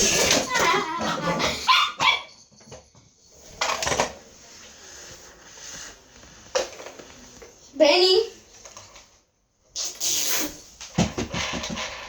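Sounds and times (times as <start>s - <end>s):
dog barking: 1.4s - 2.3s.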